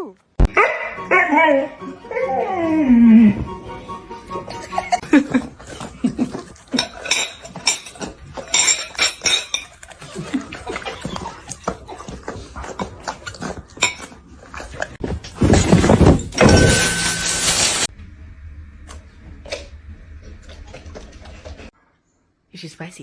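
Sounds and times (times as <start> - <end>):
dishes clinking and clattering: 5.1 - 11.8, 13.7 - 17.9.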